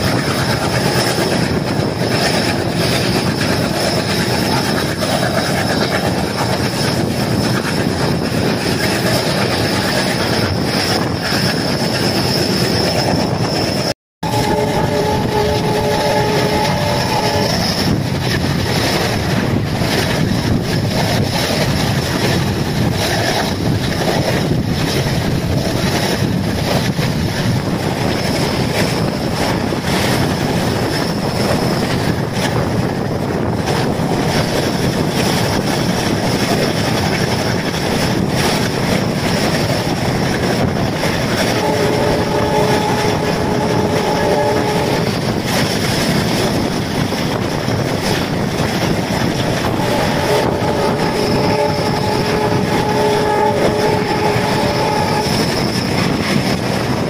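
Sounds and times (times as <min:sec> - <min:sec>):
rushing wind: 0:00.0 - 0:57.0
train wheels rumbling on rails: 0:00.0 - 0:57.0
locomotive horn chord: 0:14.2 - 0:17.6, 0:41.6 - 0:45.1, 0:49.8 - 0:55.4.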